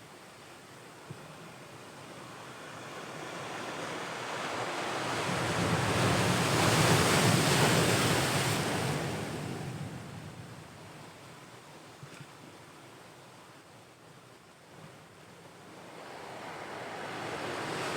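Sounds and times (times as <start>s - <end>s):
ocean wave breaking on shore: 15.7s - 17.9s.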